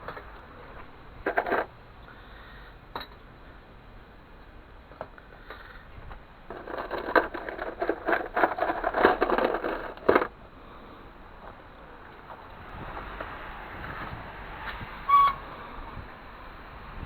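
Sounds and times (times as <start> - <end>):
hard objects rattling: 1.1 - 1.7, 6.5 - 10.4.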